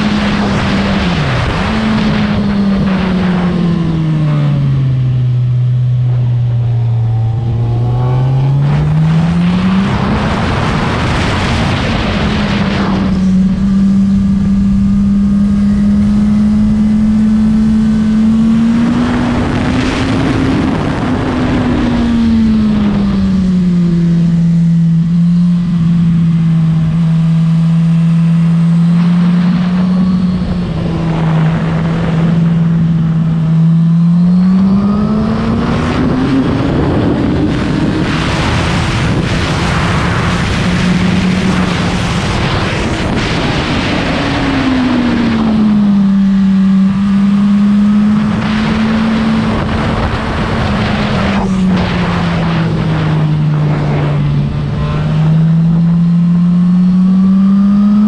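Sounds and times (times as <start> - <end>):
motorcycle engine revving: 0.0 - 58.0
wind noise rushing: 5.9 - 23.8, 29.0 - 33.6, 34.6 - 46.0, 47.8 - 55.8.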